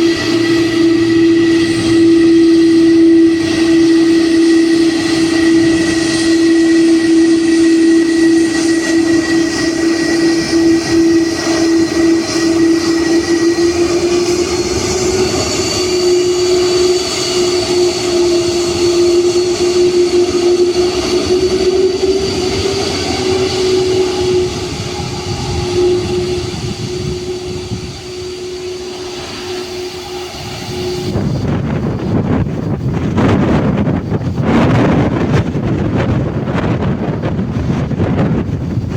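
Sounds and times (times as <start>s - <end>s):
jet engine high whine: 0.0s - 38.9s
jet engines humming: 0.0s - 38.9s
wind buffeting microphone: 0.0s - 38.9s.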